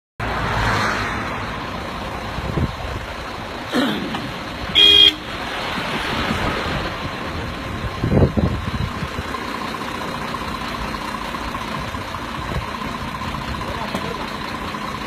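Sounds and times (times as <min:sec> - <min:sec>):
vehicle engine running: 0:01.2 - 0:15.0
short horn toot: 0:04.7 - 0:05.4.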